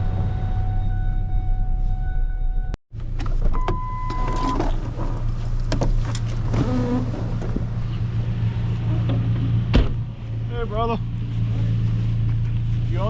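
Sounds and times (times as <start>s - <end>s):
car engine humming: 3.0s - 13.0s.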